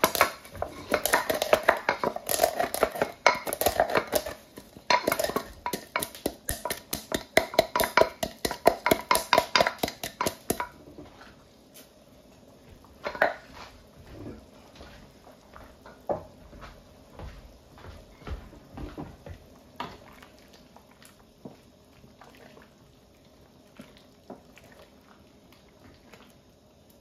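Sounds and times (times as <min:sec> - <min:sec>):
utensil scraping a pot: 0:00.0 - 0:06.8.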